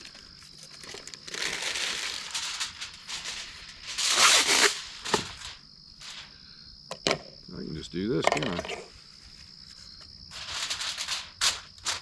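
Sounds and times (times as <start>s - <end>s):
aluminium foil crinkling: 0.0s - 6.3s, 10.3s - 12.0s.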